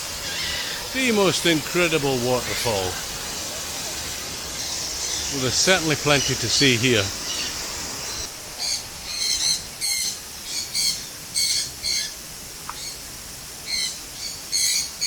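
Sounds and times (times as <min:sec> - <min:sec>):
parrots squawking: 0:00.1 - 0:03.1.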